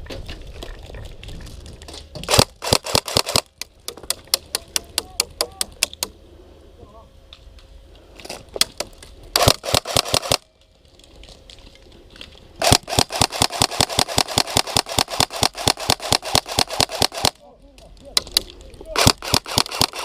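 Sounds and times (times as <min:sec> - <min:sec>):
airsoft guns firing: 0:02.3 - 0:05.3, 0:09.4 - 0:10.5, 0:12.6 - 0:17.4, 0:19.0 - 0:20.0.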